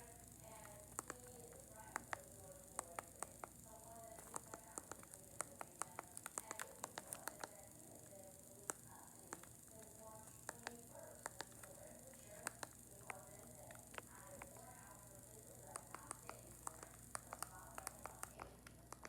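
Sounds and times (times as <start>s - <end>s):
faint distant voices: 0.0s - 19.0s
light clicks and taps: 0.4s - 19.0s.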